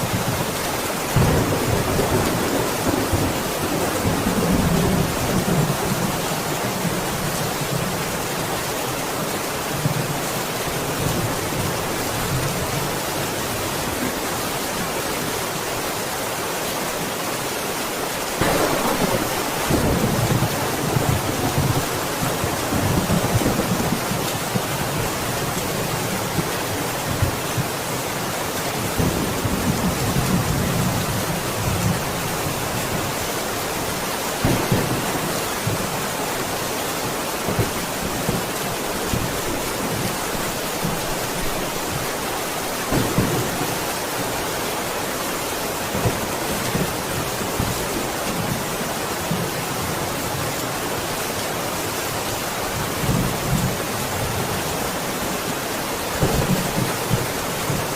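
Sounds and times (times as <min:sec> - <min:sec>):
heavy rain: 0:00.0 - 0:57.9
distant thunder rumbling: 0:01.2 - 0:06.2, 0:18.4 - 0:25.3, 0:34.4 - 0:36.0.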